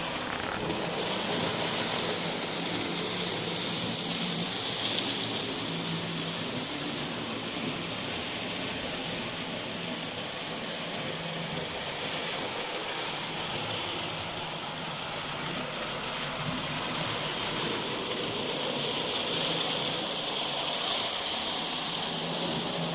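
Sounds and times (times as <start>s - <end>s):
wheels rattling over rails: 0.0s - 22.9s.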